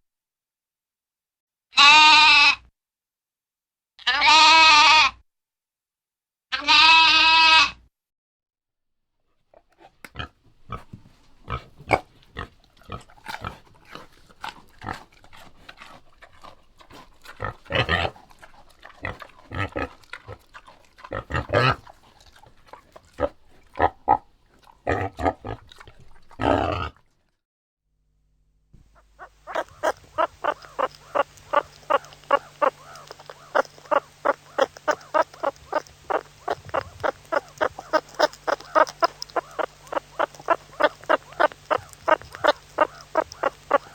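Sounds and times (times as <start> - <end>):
irregular short animal calls: 28.8 - 43.9
fast even run of animal calls: 28.9 - 43.9.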